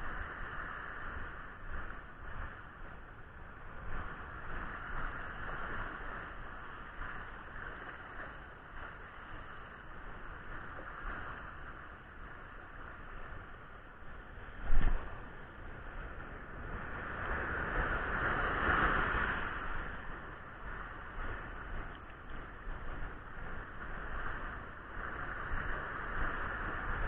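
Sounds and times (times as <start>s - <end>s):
surf washing on a beach: 0.0s - 27.0s
wind on microphone: 0.0s - 27.0s.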